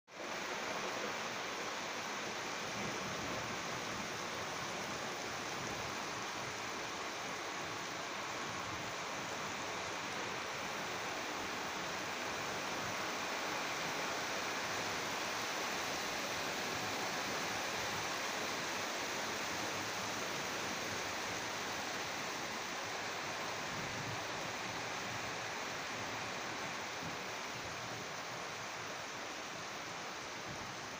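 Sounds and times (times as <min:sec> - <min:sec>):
heavy rain pouring: 0:00.1 - 0:30.9.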